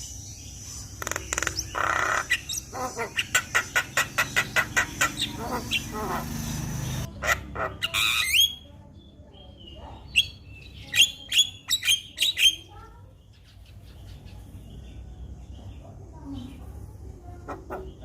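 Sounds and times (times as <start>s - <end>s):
bird squawking and whistling: 1.3s - 8.6s.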